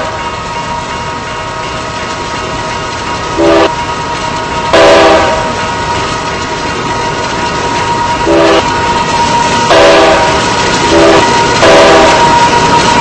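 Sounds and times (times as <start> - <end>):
moving train noise: 0.0 - 13.0
locomotive air horn blasts: 3.4 - 3.7, 4.7 - 5.6, 7.8 - 13.0.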